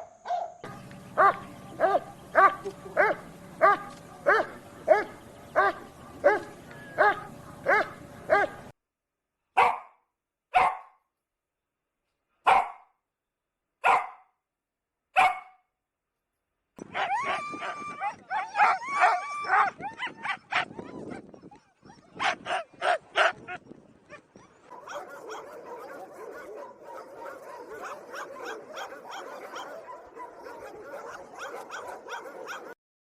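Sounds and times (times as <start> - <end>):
dog barking: 0.0 - 8.7, 9.6 - 11.0, 12.4 - 12.9, 13.8 - 14.3, 15.2 - 15.6, 18.4 - 21.0, 22.1 - 23.4, 24.7 - 32.8
low background hum: 0.6 - 8.7
dog yelping: 1.2 - 8.7, 16.8 - 32.8.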